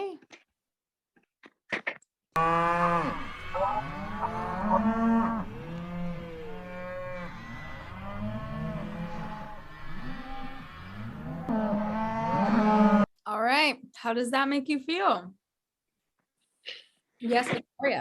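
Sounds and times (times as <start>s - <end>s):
cattle mooing: 2.4s - 13.1s.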